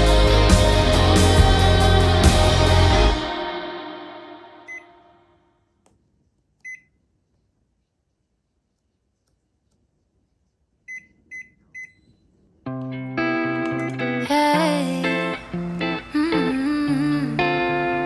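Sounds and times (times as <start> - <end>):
background music: 0.0 - 4.8
oven control panel beeps: 6.6 - 6.9, 10.9 - 12.0.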